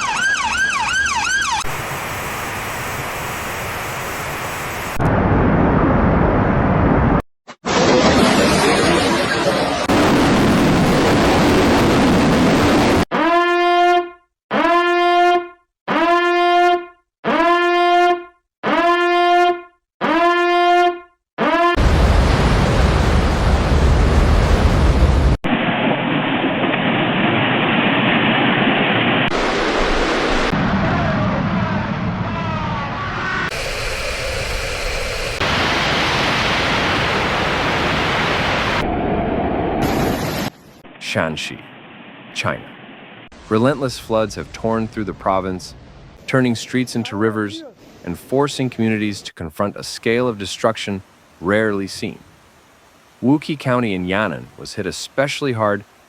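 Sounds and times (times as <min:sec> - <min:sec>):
rushing noise: 0:01.7 - 0:13.0, 0:21.8 - 0:43.9
horn long blasts: 0:13.3 - 0:22.0.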